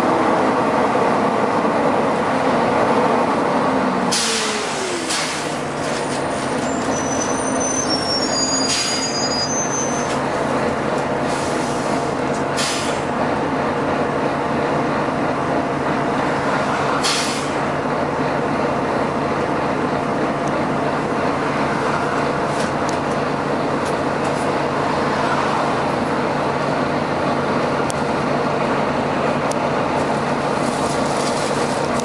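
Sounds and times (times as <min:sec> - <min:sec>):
bus engine drone: 0:00.0 - 0:32.0
pneumatic air hisses: 0:04.1 - 0:05.6, 0:08.5 - 0:09.2, 0:12.6 - 0:13.0, 0:17.0 - 0:17.6
brief high squeals: 0:06.6 - 0:10.2.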